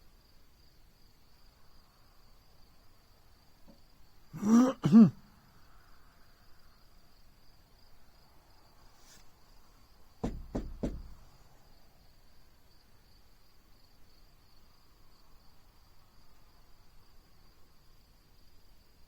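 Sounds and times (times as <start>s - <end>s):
sharp knocks: 10.2s - 11.3s.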